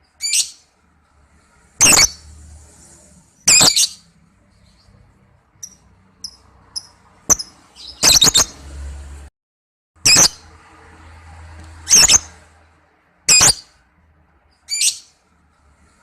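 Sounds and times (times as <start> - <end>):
lovebird calling: 1.8 - 2.2, 3.5 - 4.0, 5.6 - 8.6, 11.8 - 12.4, 13.3 - 13.7.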